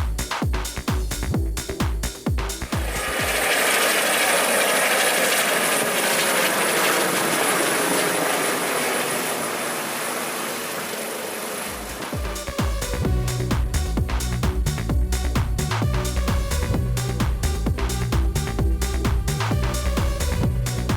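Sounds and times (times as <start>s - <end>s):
electronic music with low beat: 0.0s - 4.0s, 11.7s - 20.9s
rushing noise with high whine: 2.6s - 20.9s.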